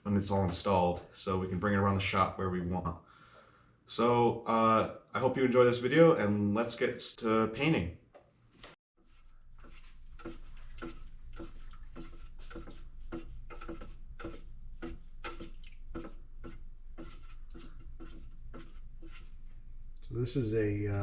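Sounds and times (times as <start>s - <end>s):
paint stirring scraping: 8.5s - 21.0s.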